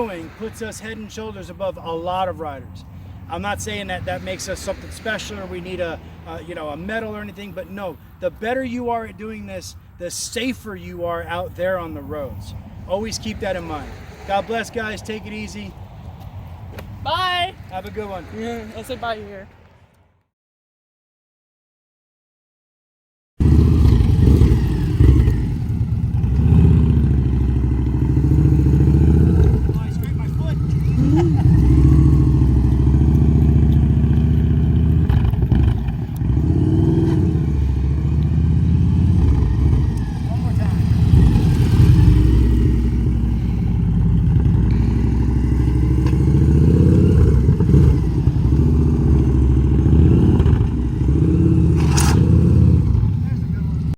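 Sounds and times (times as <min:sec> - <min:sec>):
motorcycle engine running: 0:23.4 - 0:53.9.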